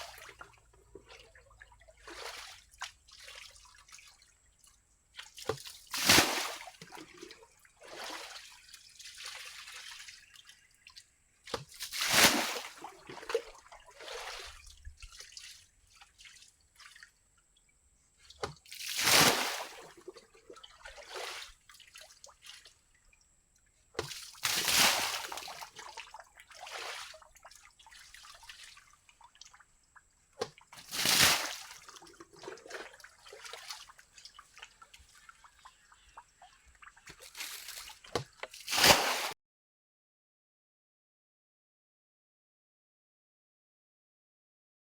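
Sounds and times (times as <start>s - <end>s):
water splashing heavily: 5.9s - 6.7s, 11.8s - 13.3s, 18.8s - 19.9s, 24.4s - 25.7s, 30.8s - 31.9s, 38.6s - 39.4s.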